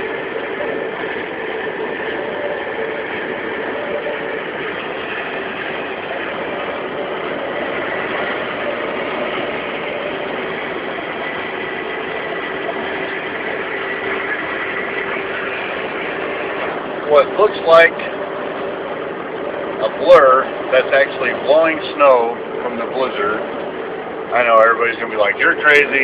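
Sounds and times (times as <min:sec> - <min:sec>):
truck engine and road noise: 0:00.0 - 0:26.0
wind against truck cab: 0:00.0 - 0:26.0.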